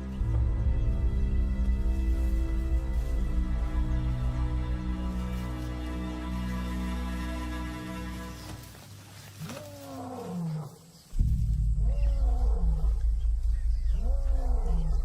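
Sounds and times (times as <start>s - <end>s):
deep low drone: 0.0s - 8.4s, 11.0s - 15.0s
lion roaring: 11.7s - 15.0s.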